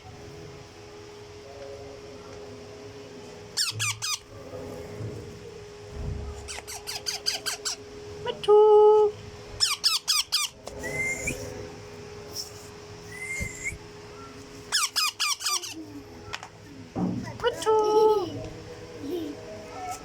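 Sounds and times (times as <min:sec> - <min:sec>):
baby parrots squeaky calls: 0:03.6 - 0:04.3, 0:06.5 - 0:07.8, 0:09.6 - 0:10.6, 0:14.7 - 0:15.8.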